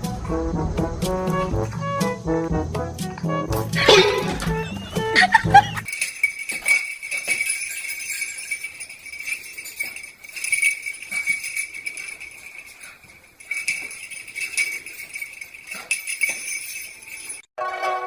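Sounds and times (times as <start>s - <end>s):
small bells shaken and ringing: 3.8s - 18.0s.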